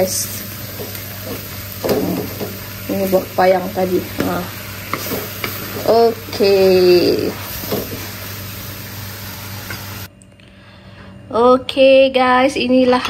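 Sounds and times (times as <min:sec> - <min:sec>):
food sizzling in a pan: 0:00.0 - 0:10.1.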